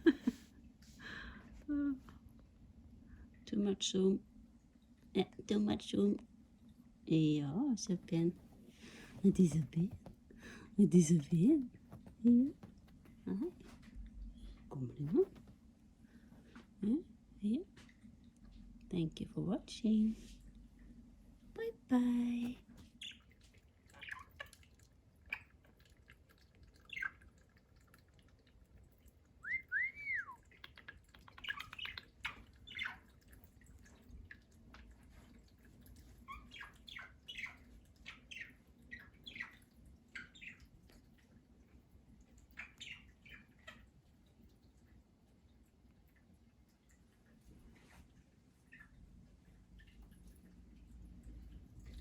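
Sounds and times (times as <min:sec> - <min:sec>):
budgerigar whistles: 0:29.4 - 0:30.4
budgerigar chirping: 0:29.5 - 0:33.1.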